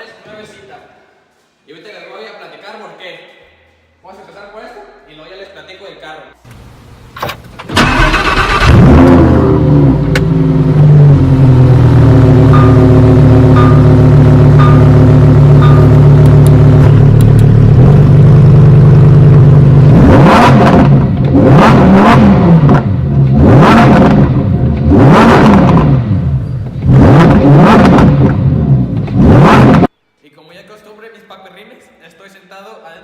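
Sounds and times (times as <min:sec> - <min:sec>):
sports car engine idling and revving: 0:08.5 - 0:29.9.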